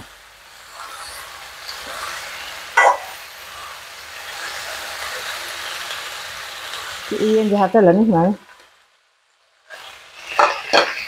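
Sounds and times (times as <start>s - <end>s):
vegetables sizzling in a wok: 0.0s - 11.0s
metal ladle scraping a wok: 9.7s - 11.0s.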